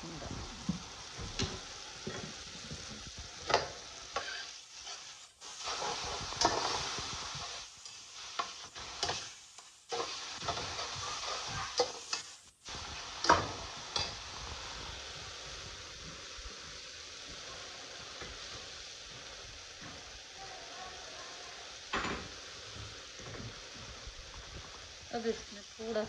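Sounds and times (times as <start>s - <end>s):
food sizzling in a pot: 0.0s - 26.0s
metal spatula scraping a pot: 4.1s - 6.9s.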